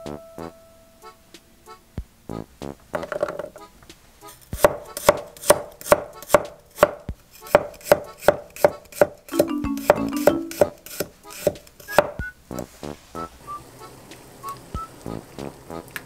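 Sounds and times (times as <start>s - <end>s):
knife chopping on wooden board: 4.5s - 12.2s.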